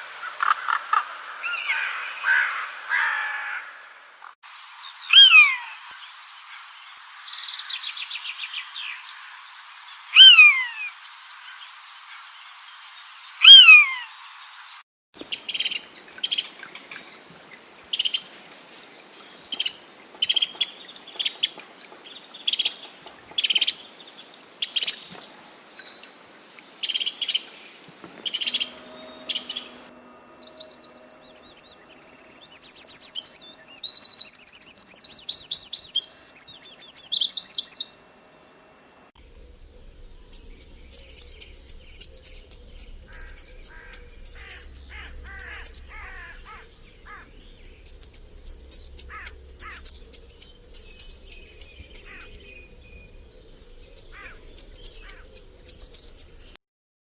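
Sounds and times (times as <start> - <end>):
bird whistles sliding downward: 10.2 - 10.7, 28.2 - 37.9, 40.3 - 45.9, 47.9 - 52.4
fast high-pitched bird twittering: 10.2 - 10.7, 28.2 - 37.9, 40.2 - 53.2, 53.9 - 56.6.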